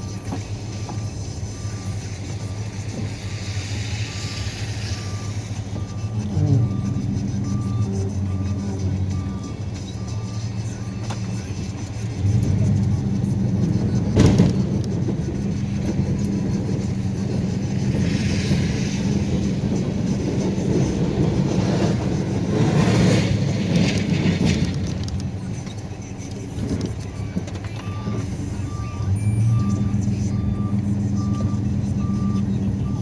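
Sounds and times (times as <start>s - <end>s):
truck engine running: 0.0s - 33.0s
hissing noise: 0.4s - 25.8s.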